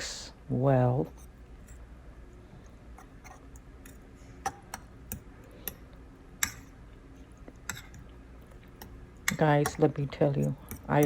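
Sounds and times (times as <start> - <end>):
utensil clinking against bowl: 3.0 - 6.8, 7.5 - 11.0.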